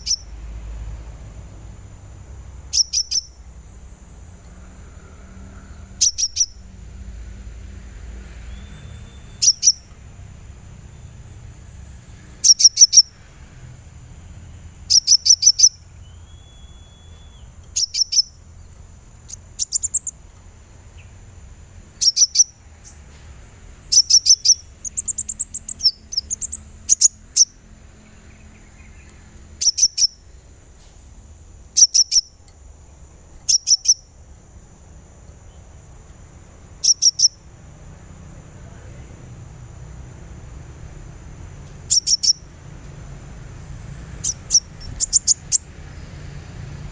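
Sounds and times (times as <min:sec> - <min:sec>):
bird chirping: 0:00.0 - 0:00.4, 0:02.5 - 0:07.0, 0:07.7 - 0:30.9, 0:31.6 - 0:39.1, 0:41.4 - 0:46.9
steady low hum: 0:00.0 - 0:46.9
faint high whine: 0:02.8 - 0:30.4.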